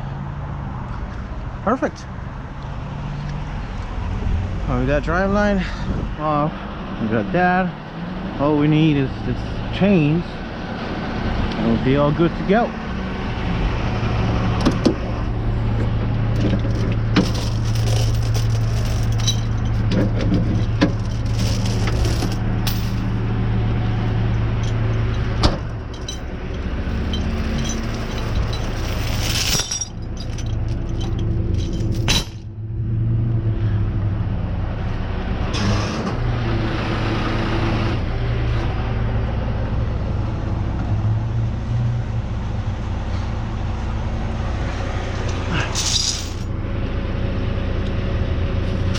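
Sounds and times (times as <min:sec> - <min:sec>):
truck engine running: 0:04.7 - 0:48.9
metal chains clanking: 0:16.3 - 0:23.2, 0:23.9 - 0:32.5, 0:45.5 - 0:46.5.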